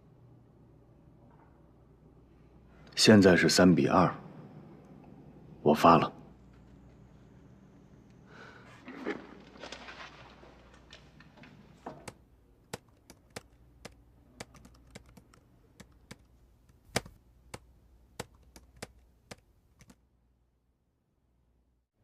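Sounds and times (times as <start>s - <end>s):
faint low room hum: 0.0s - 22.0s
computer keys clicking: 12.0s - 17.6s, 18.2s - 20.0s.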